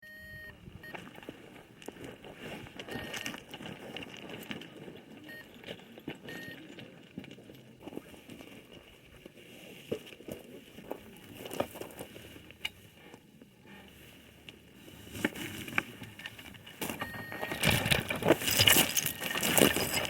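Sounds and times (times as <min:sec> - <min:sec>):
short high beeps: 0:00.0 - 0:01.0, 0:02.9 - 0:03.3, 0:06.3 - 0:06.6, 0:17.0 - 0:17.7
crackling and rustling: 0:00.9 - 0:20.0.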